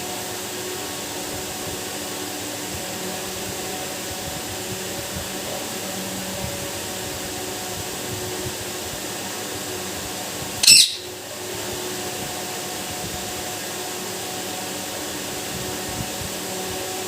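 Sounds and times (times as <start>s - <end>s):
parrot squawk: 10.6s - 11.1s
faint hum: 10.6s - 11.6s.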